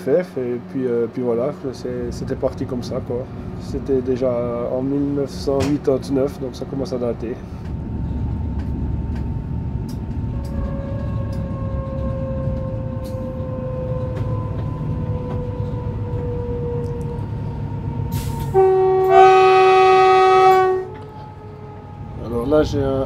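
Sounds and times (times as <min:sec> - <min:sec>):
electric train rumbling on track: 0:00.0 - 0:23.0
faint train whine: 0:00.0 - 0:23.0
train horn: 0:10.3 - 0:17.2, 0:18.1 - 0:22.4.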